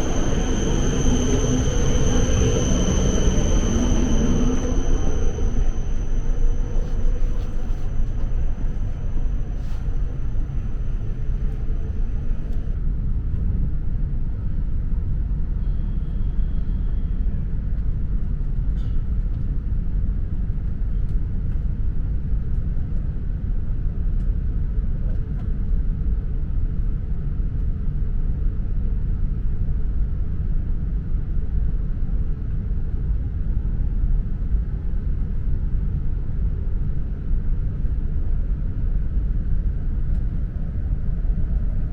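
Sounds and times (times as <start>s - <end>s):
faint high whine: 0.0s - 12.8s
train rumble inside cabin: 0.0s - 41.9s.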